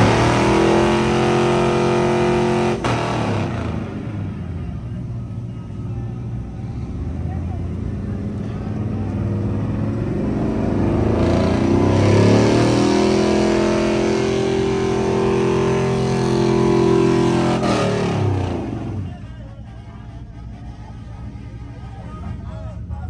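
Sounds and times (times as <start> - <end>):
vehicle engine revving: 0.0 - 19.4.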